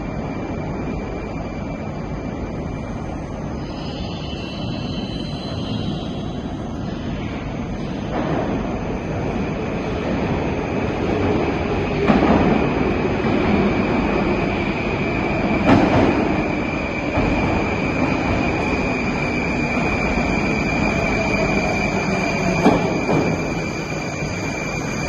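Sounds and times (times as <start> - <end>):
metro train rumble: 0.0 - 25.0
high-pitched squeal: 3.5 - 8.0.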